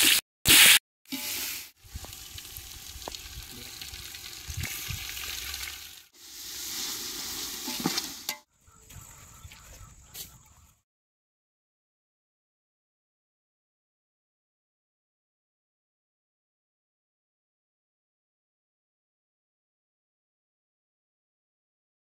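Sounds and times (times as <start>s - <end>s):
food sizzling in hot oil: 0.0s - 8.4s.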